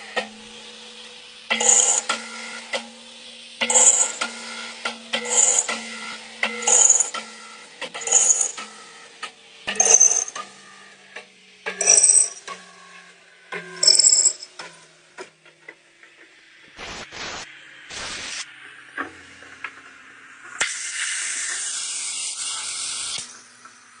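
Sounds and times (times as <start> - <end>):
lathe hissing: 0.0 - 2.7, 3.6 - 9.0
lathe mechanical clicks: 7.8 - 8.7.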